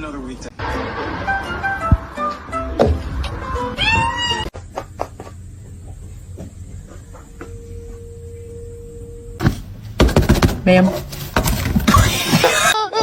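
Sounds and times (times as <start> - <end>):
cat meowing: 3.7 - 4.5.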